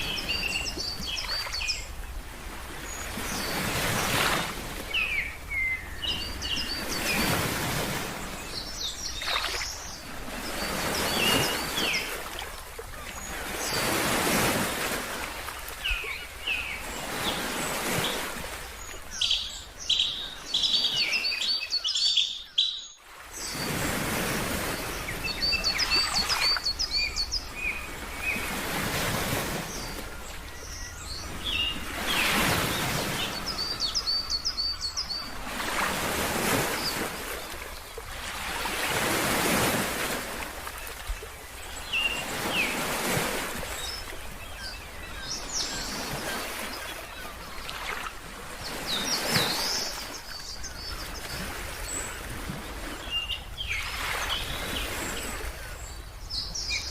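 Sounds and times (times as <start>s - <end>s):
bird chirping: 19.2s - 23.0s.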